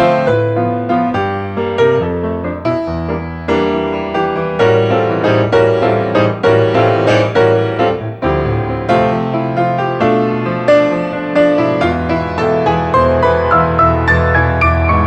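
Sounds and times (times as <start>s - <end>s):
solo piano playing: 8.3s - 10.2s.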